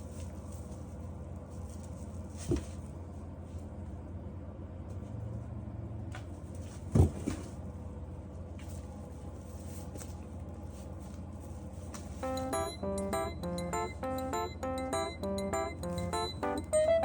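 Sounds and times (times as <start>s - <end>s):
low room hum: 0.0s - 17.0s
plucked keyboard music: 12.2s - 17.0s.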